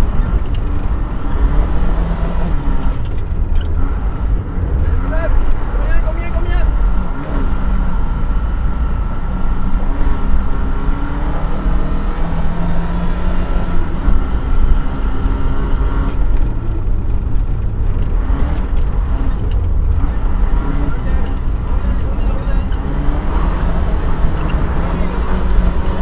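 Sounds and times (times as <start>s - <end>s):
car engine rumbling and revving: 0.0s - 26.0s.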